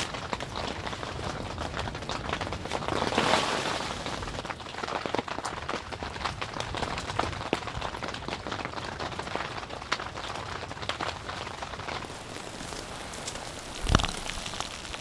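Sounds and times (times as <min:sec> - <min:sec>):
drops pattering on a tent: 0:12.0 - 0:15.0
steady hiss: 0:12.0 - 0:15.0.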